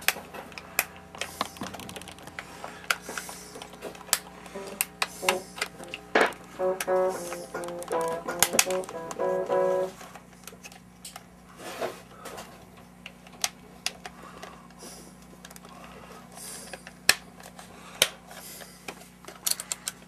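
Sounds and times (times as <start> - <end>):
steady low hum: 0.6 - 10.2
chord of held tones: 4.5 - 10.0
sharp clicks and taps: 4.6 - 9.9.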